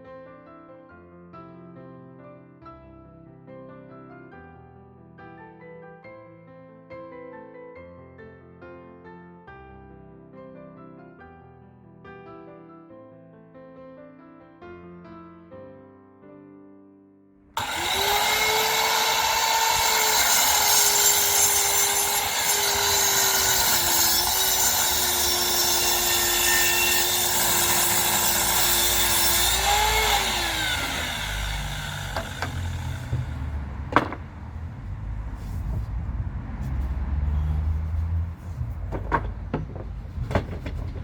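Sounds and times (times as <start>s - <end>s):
power saw cutting wood: 17.6s - 34.2s.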